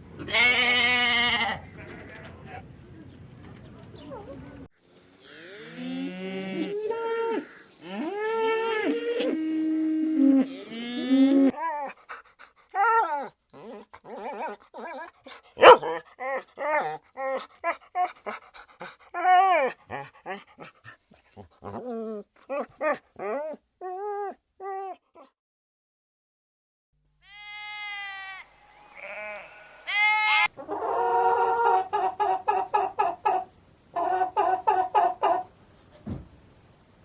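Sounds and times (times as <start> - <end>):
cow mooing: 5.2 - 11.5
dog yipping and whimpering: 12.8 - 18.2.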